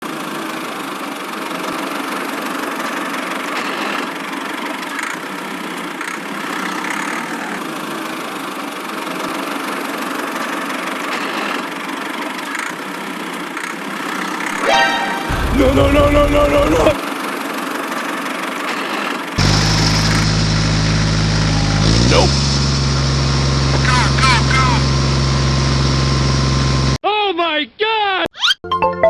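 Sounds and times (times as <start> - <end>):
motor running: 15.3 - 17.0, 19.4 - 27.0.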